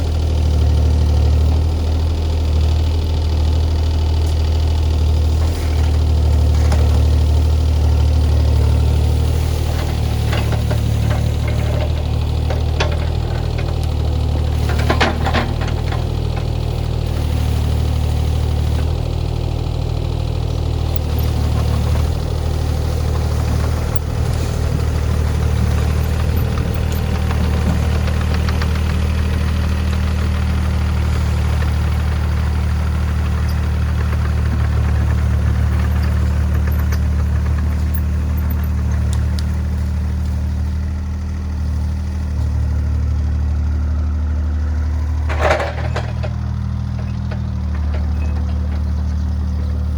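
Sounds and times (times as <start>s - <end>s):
diesel engine droning: 0.0s - 49.9s.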